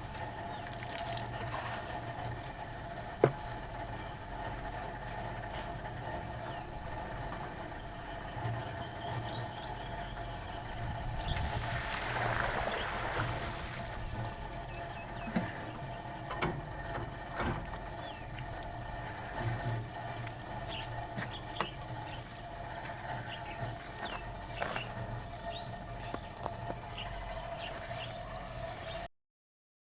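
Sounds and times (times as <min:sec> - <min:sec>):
steady low hum: 0:00.0 - 0:29.1
sharp clicks and knocks: 0:15.2 - 0:18.6.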